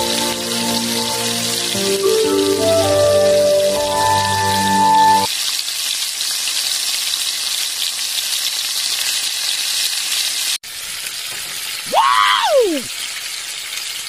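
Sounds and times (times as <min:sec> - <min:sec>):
music notes: 0:00.0 - 0:05.3
meat sizzling on a griddle: 0:00.0 - 0:14.0.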